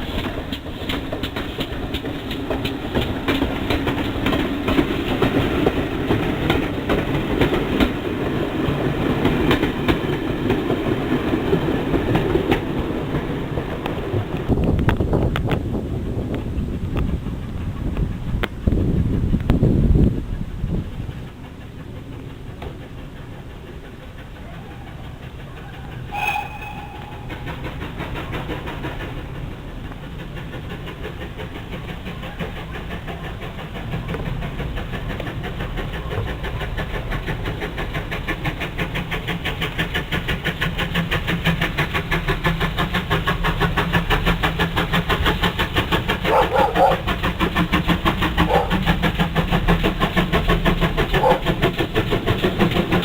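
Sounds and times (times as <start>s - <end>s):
steam train beats and wheel noise: 0.0s - 53.0s
train whistle: 24.6s - 28.7s, 46.3s - 47.1s, 51.1s - 51.7s.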